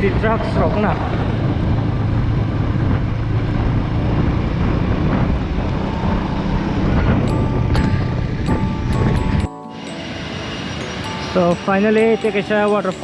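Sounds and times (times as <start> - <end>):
wind rushing over microphone: 0.0 - 12.2
motorcycle engine drone: 0.0 - 13.0
music: 6.9 - 13.0.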